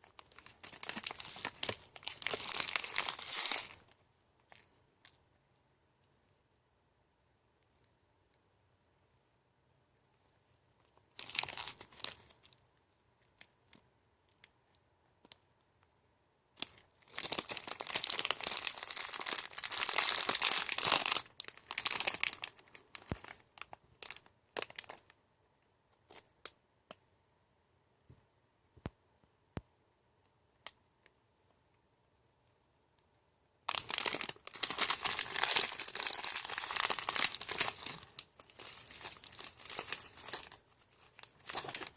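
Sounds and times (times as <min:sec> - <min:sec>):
wrapper tearing and crinkling: 0:00.1 - 0:03.9, 0:11.2 - 0:12.4, 0:16.6 - 0:25.0, 0:33.7 - 0:41.9.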